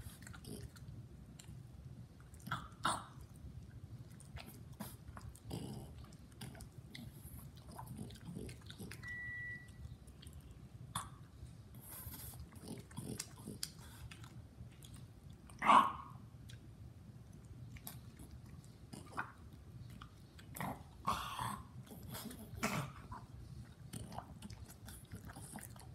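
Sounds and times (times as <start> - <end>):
dog and man chewing food: 0.0 - 25.9
short steady high tone: 9.0 - 9.8.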